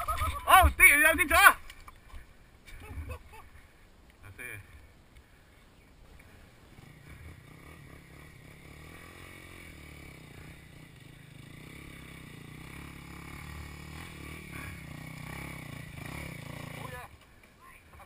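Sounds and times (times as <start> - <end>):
vehicle engine running: 6.6 - 16.8.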